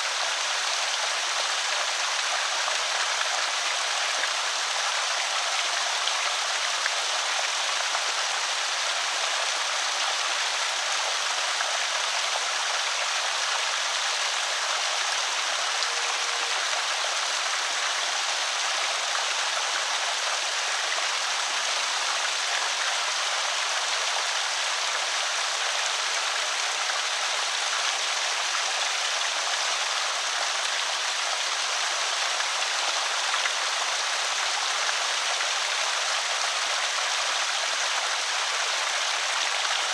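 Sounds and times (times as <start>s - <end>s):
water rushing over spillway: 0.0s - 39.9s.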